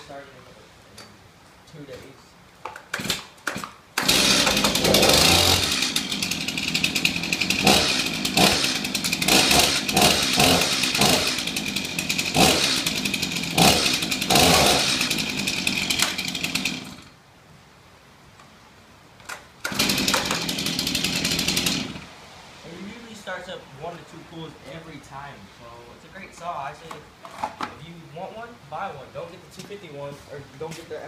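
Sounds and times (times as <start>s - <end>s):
chainsaw starting and revving: 2.9s - 17.2s, 19.6s - 22.2s.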